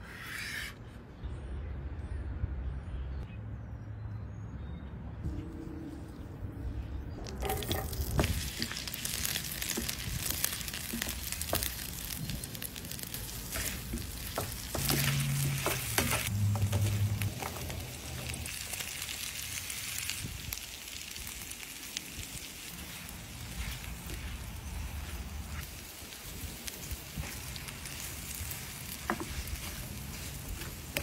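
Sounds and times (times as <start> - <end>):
low hum: 5.2 - 8.4
potatoes sizzling in pan: 7.4 - 31.0.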